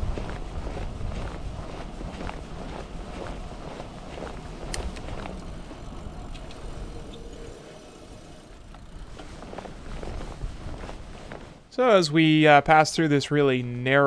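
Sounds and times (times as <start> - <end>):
rolling tyre noise: 0.0 - 11.7.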